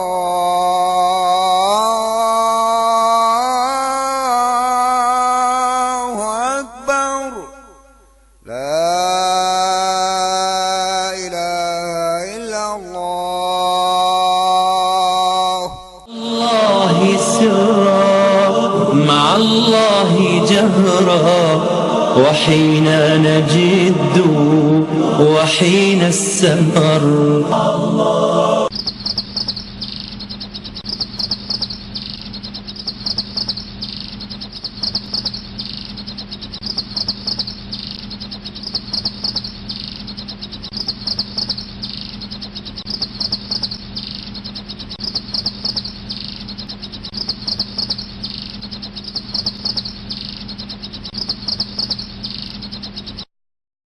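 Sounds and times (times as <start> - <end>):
insects chirping: 7.4 - 12.7, 13.3 - 21.5, 28.7 - 53.3
steady low hum: 15.8 - 53.3.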